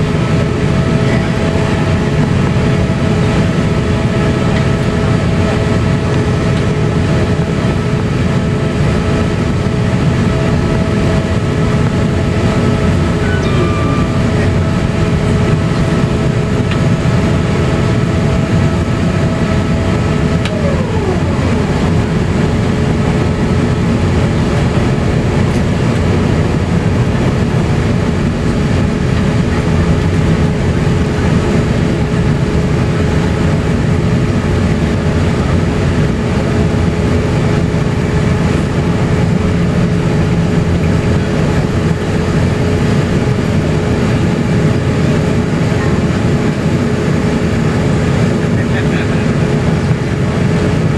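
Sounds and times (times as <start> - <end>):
airliner cabin rumble taxiing: 0.0 - 50.9
constant engine whine: 0.0 - 50.9
higher whine sliding down: 12.4 - 25.0.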